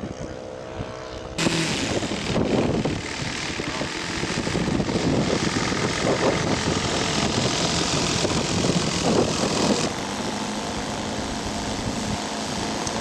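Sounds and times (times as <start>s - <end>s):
wind buffeting microphone: 0.0s - 9.9s
model airplane engine: 0.0s - 13.0s.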